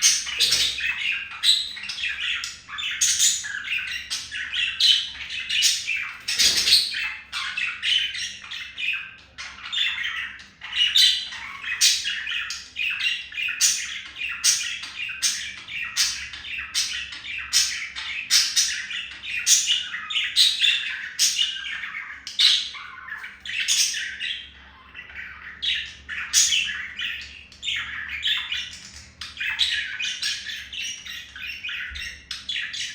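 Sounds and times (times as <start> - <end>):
budgies chattering: 0.0 - 32.9.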